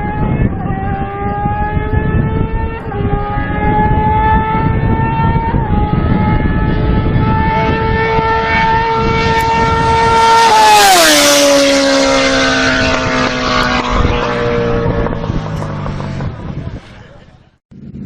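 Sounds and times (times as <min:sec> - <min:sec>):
motorcycle passing at high revs: 0:00.0 - 0:18.0.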